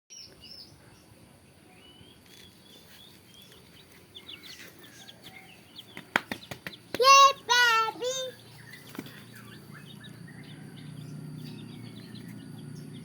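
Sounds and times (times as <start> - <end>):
small birds chirping: 0.1 - 13.0.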